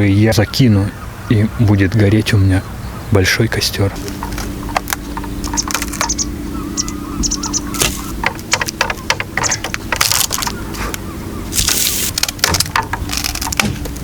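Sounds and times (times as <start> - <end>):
dry branches snapping: 4.0 - 14.0.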